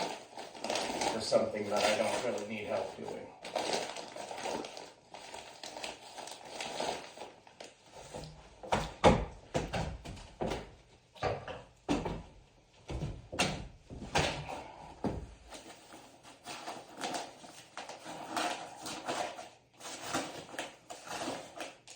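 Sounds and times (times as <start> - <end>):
carpentry knocks and thumps: 8.6 - 15.4.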